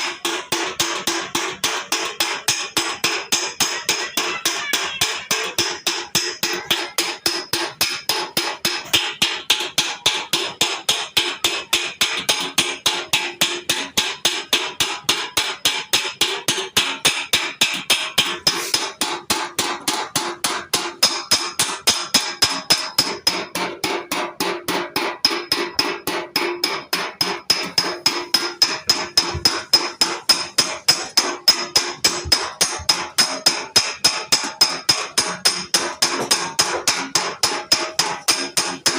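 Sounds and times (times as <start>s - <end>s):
hammer striking ringing sheet metal: 0.0s - 38.9s.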